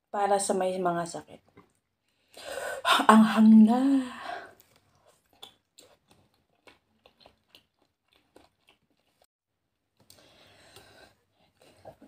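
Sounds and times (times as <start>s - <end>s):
soft chewing clicks and crunches: 1.3s - 2.4s, 4.6s - 12.0s.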